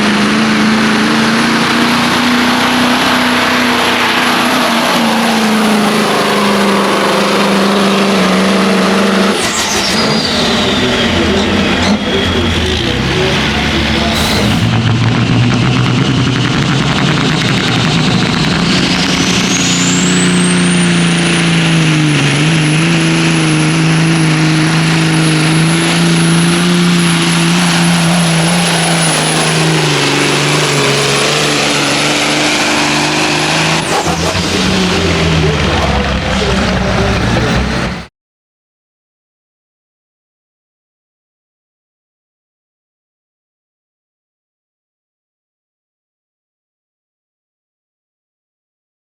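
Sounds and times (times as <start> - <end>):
diesel truck engine under load: 0.0 - 38.1.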